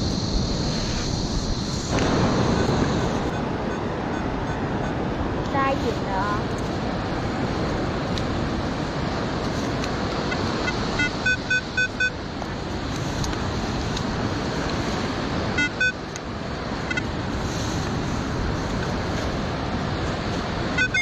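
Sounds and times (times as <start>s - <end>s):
surf: 0.0s - 21.0s
wind: 0.0s - 21.0s
metal detector beeps: 10.3s - 12.2s, 15.6s - 16.0s, 16.9s - 17.1s, 20.7s - 21.0s.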